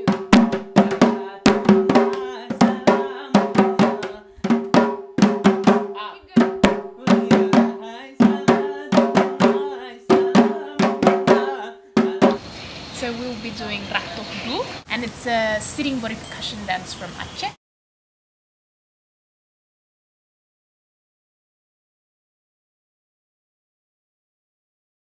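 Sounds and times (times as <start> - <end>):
voices singing held melody: 0.0 - 4.4, 6.0 - 12.5.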